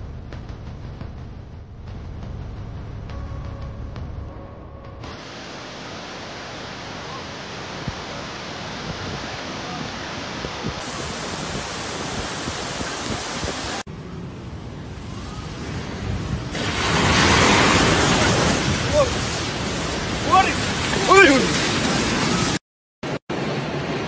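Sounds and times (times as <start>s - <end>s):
loud rushing noise: 14.8s - 24.0s.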